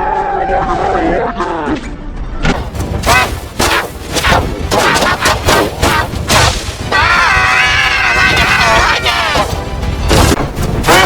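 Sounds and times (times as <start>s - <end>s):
loud blasts and crashes: 2.5s - 11.0s
warbling pitch-bent cries: 6.9s - 9.4s.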